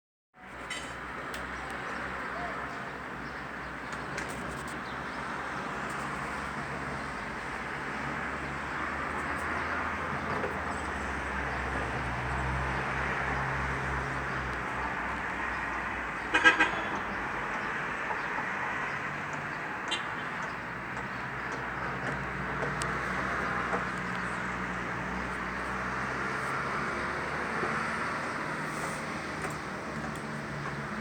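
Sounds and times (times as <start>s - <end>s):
street traffic noise: 0.4s - 31.0s
car horn toots: 16.3s - 17.0s
vehicle passing: 20.7s - 31.0s.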